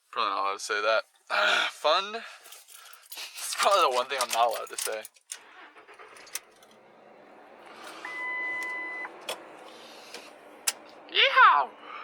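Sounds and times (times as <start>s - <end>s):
vehicle quietly running: 5.5s - 12.0s
vehicle warning beep: 7.9s - 10.1s.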